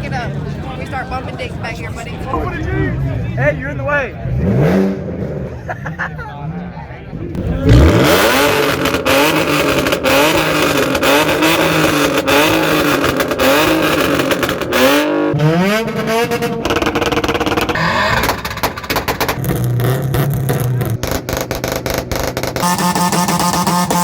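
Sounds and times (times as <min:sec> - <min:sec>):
car engine revving hard: 0:04.2 - 0:05.7, 0:07.3 - 0:24.0.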